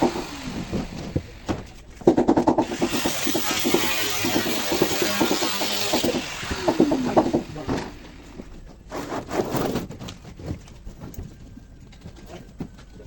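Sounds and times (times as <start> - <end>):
knocks and taps: 1.5 - 7.5.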